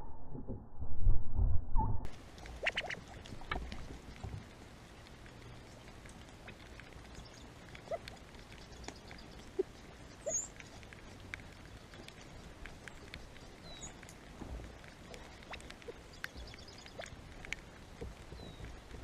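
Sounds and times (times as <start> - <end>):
small animal chirps and clicks: 2.4 - 3.8, 5.3 - 14.2, 14.8 - 19.0.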